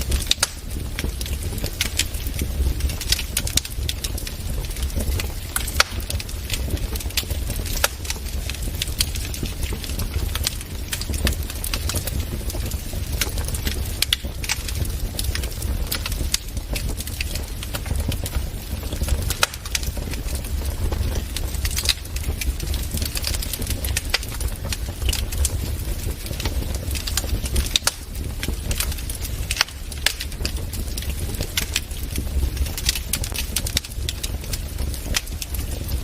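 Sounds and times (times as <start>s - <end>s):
low rumble of burning: 0.0s - 36.0s
wood fire popping and snapping: 0.0s - 36.0s.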